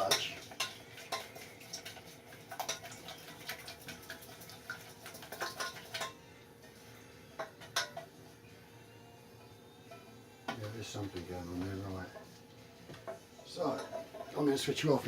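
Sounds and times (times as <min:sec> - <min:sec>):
utensil stirring and tapping in pot: 0:00.0 - 0:06.2.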